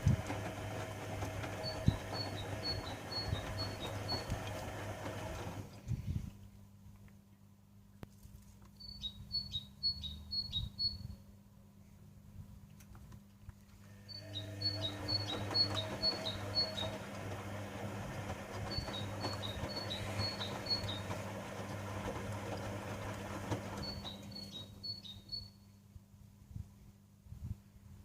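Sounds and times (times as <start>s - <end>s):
washing machine motor hum: 0.0s - 5.9s, 13.9s - 25.4s.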